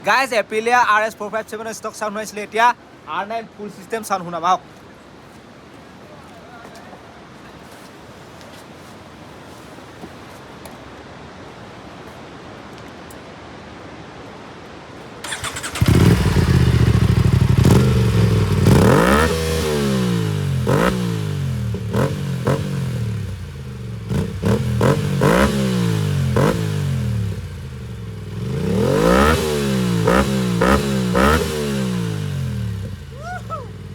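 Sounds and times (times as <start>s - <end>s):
faint steady hiss: 0.0s - 33.9s
motorcycle engine revving: 15.2s - 33.9s.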